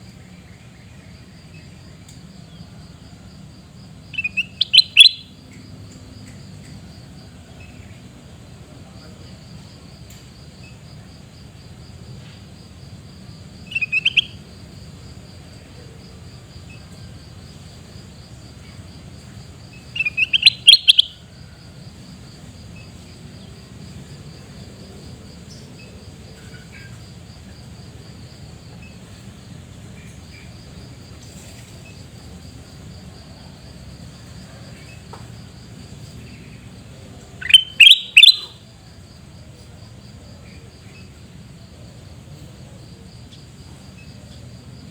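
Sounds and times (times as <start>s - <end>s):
pulsing insect trill: 0.0s - 44.9s
bird shrill calls: 4.2s - 5.3s, 13.7s - 14.3s, 20.0s - 21.1s, 37.4s - 38.6s.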